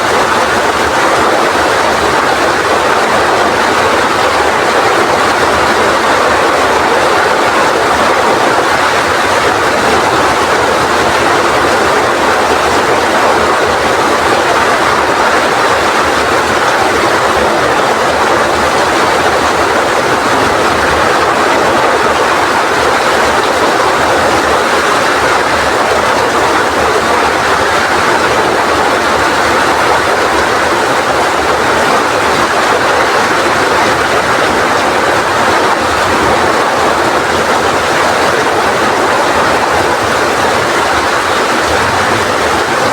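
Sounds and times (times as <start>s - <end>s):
rain falling: 0.0s - 42.9s
strong wind: 0.0s - 42.9s.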